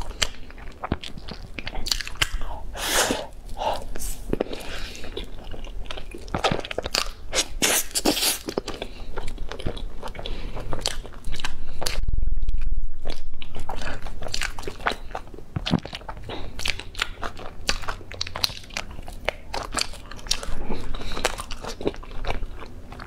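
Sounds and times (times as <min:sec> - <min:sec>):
person chewing food: 0:00.0 - 0:23.0
muffled low rumble: 0:10.1 - 0:16.4.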